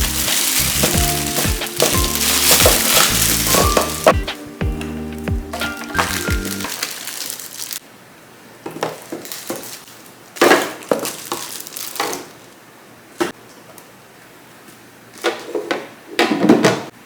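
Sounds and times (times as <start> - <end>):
plastic packaging crinkling: 0.0 - 4.6, 5.5 - 7.8, 8.7 - 12.6
plastic containers knocking: 0.0 - 4.9, 5.5 - 6.7, 10.4 - 12.3.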